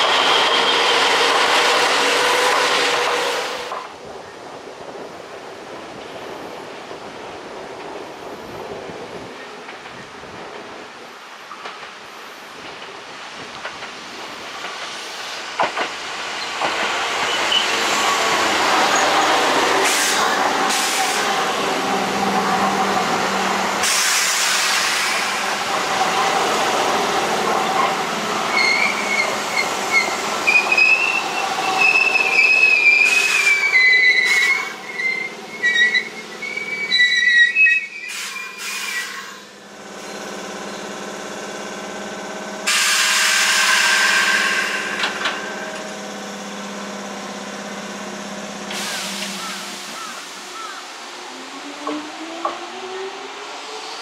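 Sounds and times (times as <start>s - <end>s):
train wheels squealing: 0.0s - 1.5s, 17.2s - 19.4s, 27.7s - 40.2s
electric train rolling on rails: 0.0s - 54.0s
air hiss: 23.8s - 25.7s, 38.1s - 39.5s, 42.7s - 45.2s, 48.7s - 50.4s.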